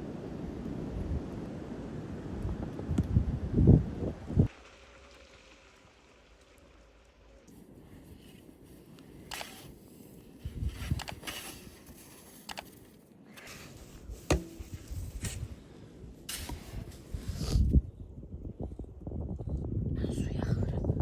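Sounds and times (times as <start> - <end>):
scrapes: 7.8 - 15.6.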